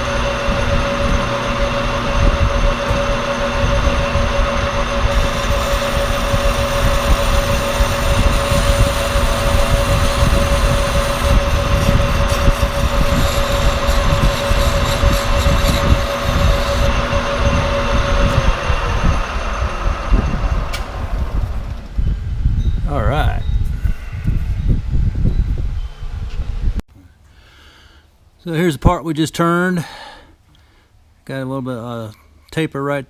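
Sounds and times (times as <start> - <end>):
lathe running with whine: 0.0 - 22.2.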